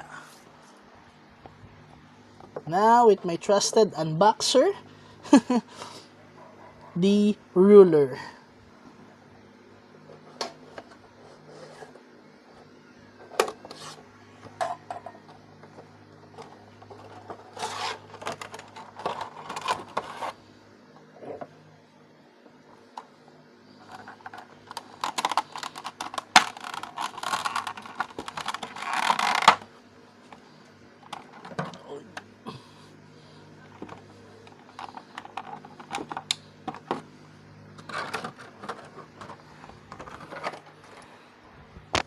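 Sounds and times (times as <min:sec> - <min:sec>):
faint steady hum: 0:00.0 - 0:42.0
cardboard box scraping and rustling: 0:17.2 - 0:20.4.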